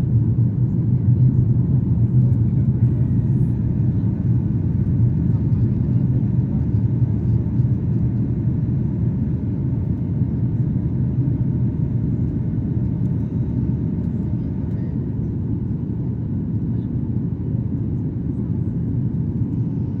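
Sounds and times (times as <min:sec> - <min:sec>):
jet airliner engines rumbling: 0:00.0 - 0:20.0.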